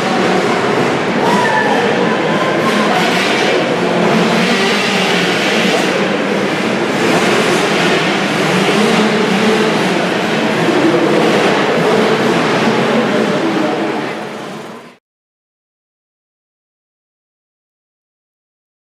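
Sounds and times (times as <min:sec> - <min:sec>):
motocross bike engines racing: 0:00.0 - 0:15.0.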